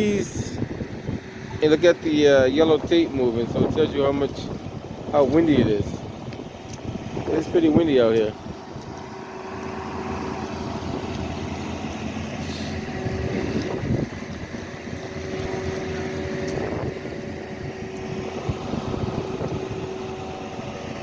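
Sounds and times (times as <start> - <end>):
street traffic: 0.0 - 21.0
vehicle engine idling: 0.0 - 21.0
wind buffeting microphone: 0.0 - 21.0.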